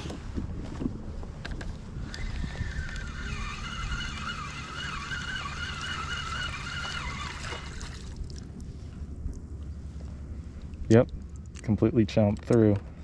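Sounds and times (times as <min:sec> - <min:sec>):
wind: 0:00.0 - 0:13.0
fishing reel whirring: 0:02.0 - 0:08.0
water noise: 0:02.0 - 0:11.6.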